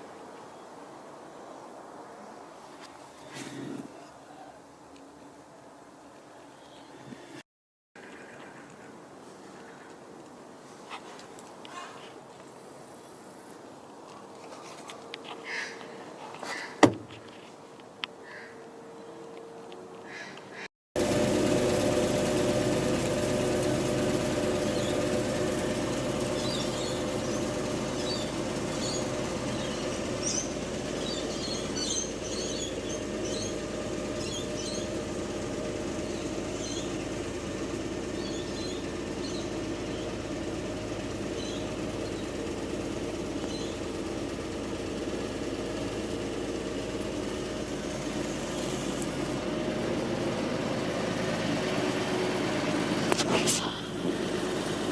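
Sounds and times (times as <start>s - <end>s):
steady mechanical hum: 21.0s - 54.9s.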